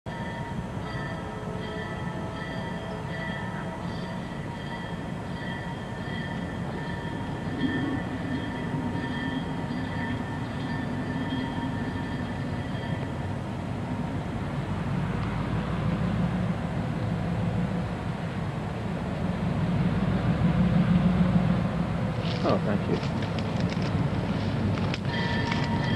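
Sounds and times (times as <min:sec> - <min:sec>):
high metallic ringing: 0:00.1 - 0:13.4, 0:25.0 - 0:25.9
locomotive engine rumble: 0:00.1 - 0:25.9.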